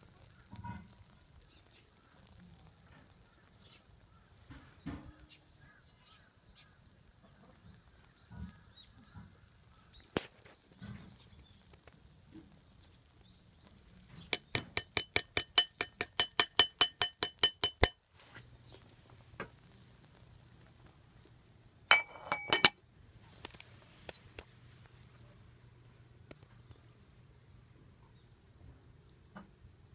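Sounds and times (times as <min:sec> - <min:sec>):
metal cookware clinking: 0:14.4 - 0:18.0, 0:21.9 - 0:22.8.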